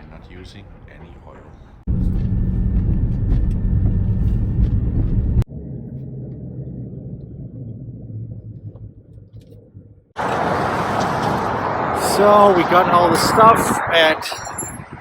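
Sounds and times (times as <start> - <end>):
quiet engine rumble: 1.5 - 12.5
car engine droning: 1.9 - 15.0.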